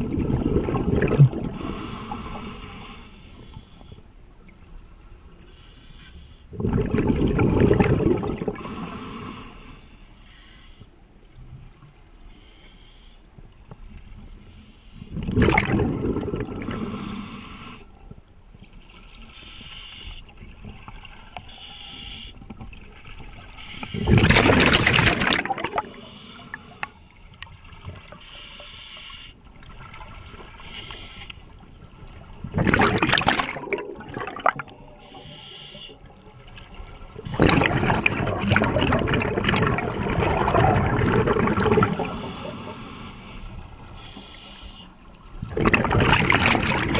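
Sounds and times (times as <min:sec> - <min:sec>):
gurgling exhaled bubbles: 0:00.0 - 0:01.8, 0:06.5 - 0:08.8, 0:15.1 - 0:17.1, 0:23.9 - 0:26.0, 0:32.4 - 0:35.0, 0:36.5 - 0:42.5, 0:45.4 - 0:46.9
regulator inhalation hiss: 0:16.7 - 0:17.9, 0:19.3 - 0:20.3, 0:21.5 - 0:22.4, 0:25.8 - 0:27.2, 0:28.2 - 0:29.4, 0:30.6 - 0:31.4, 0:34.9 - 0:36.1, 0:42.0 - 0:45.1.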